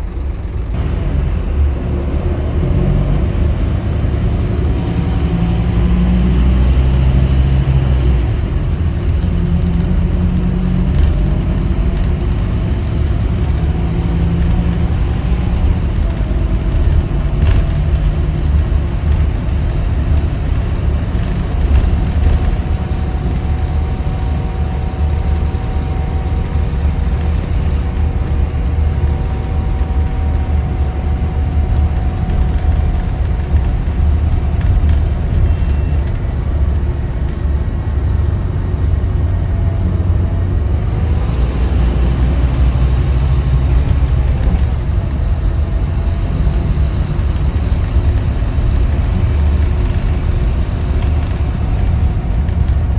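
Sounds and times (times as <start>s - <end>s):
steady whine: 0.0s - 6.0s
bus diesel engine rumbling: 0.0s - 52.9s.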